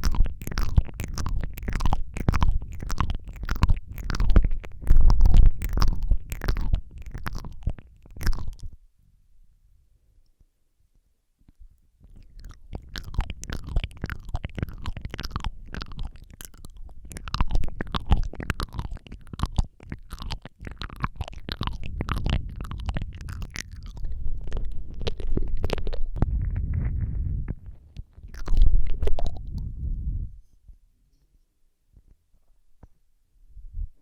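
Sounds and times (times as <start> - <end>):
lip smacks and licking: 0.0 - 8.8, 11.5 - 29.8
wet tongue clicks: 0.0 - 8.8, 11.5 - 26.6, 28.0 - 29.7
breath rumble on microphone: 12.1 - 30.8.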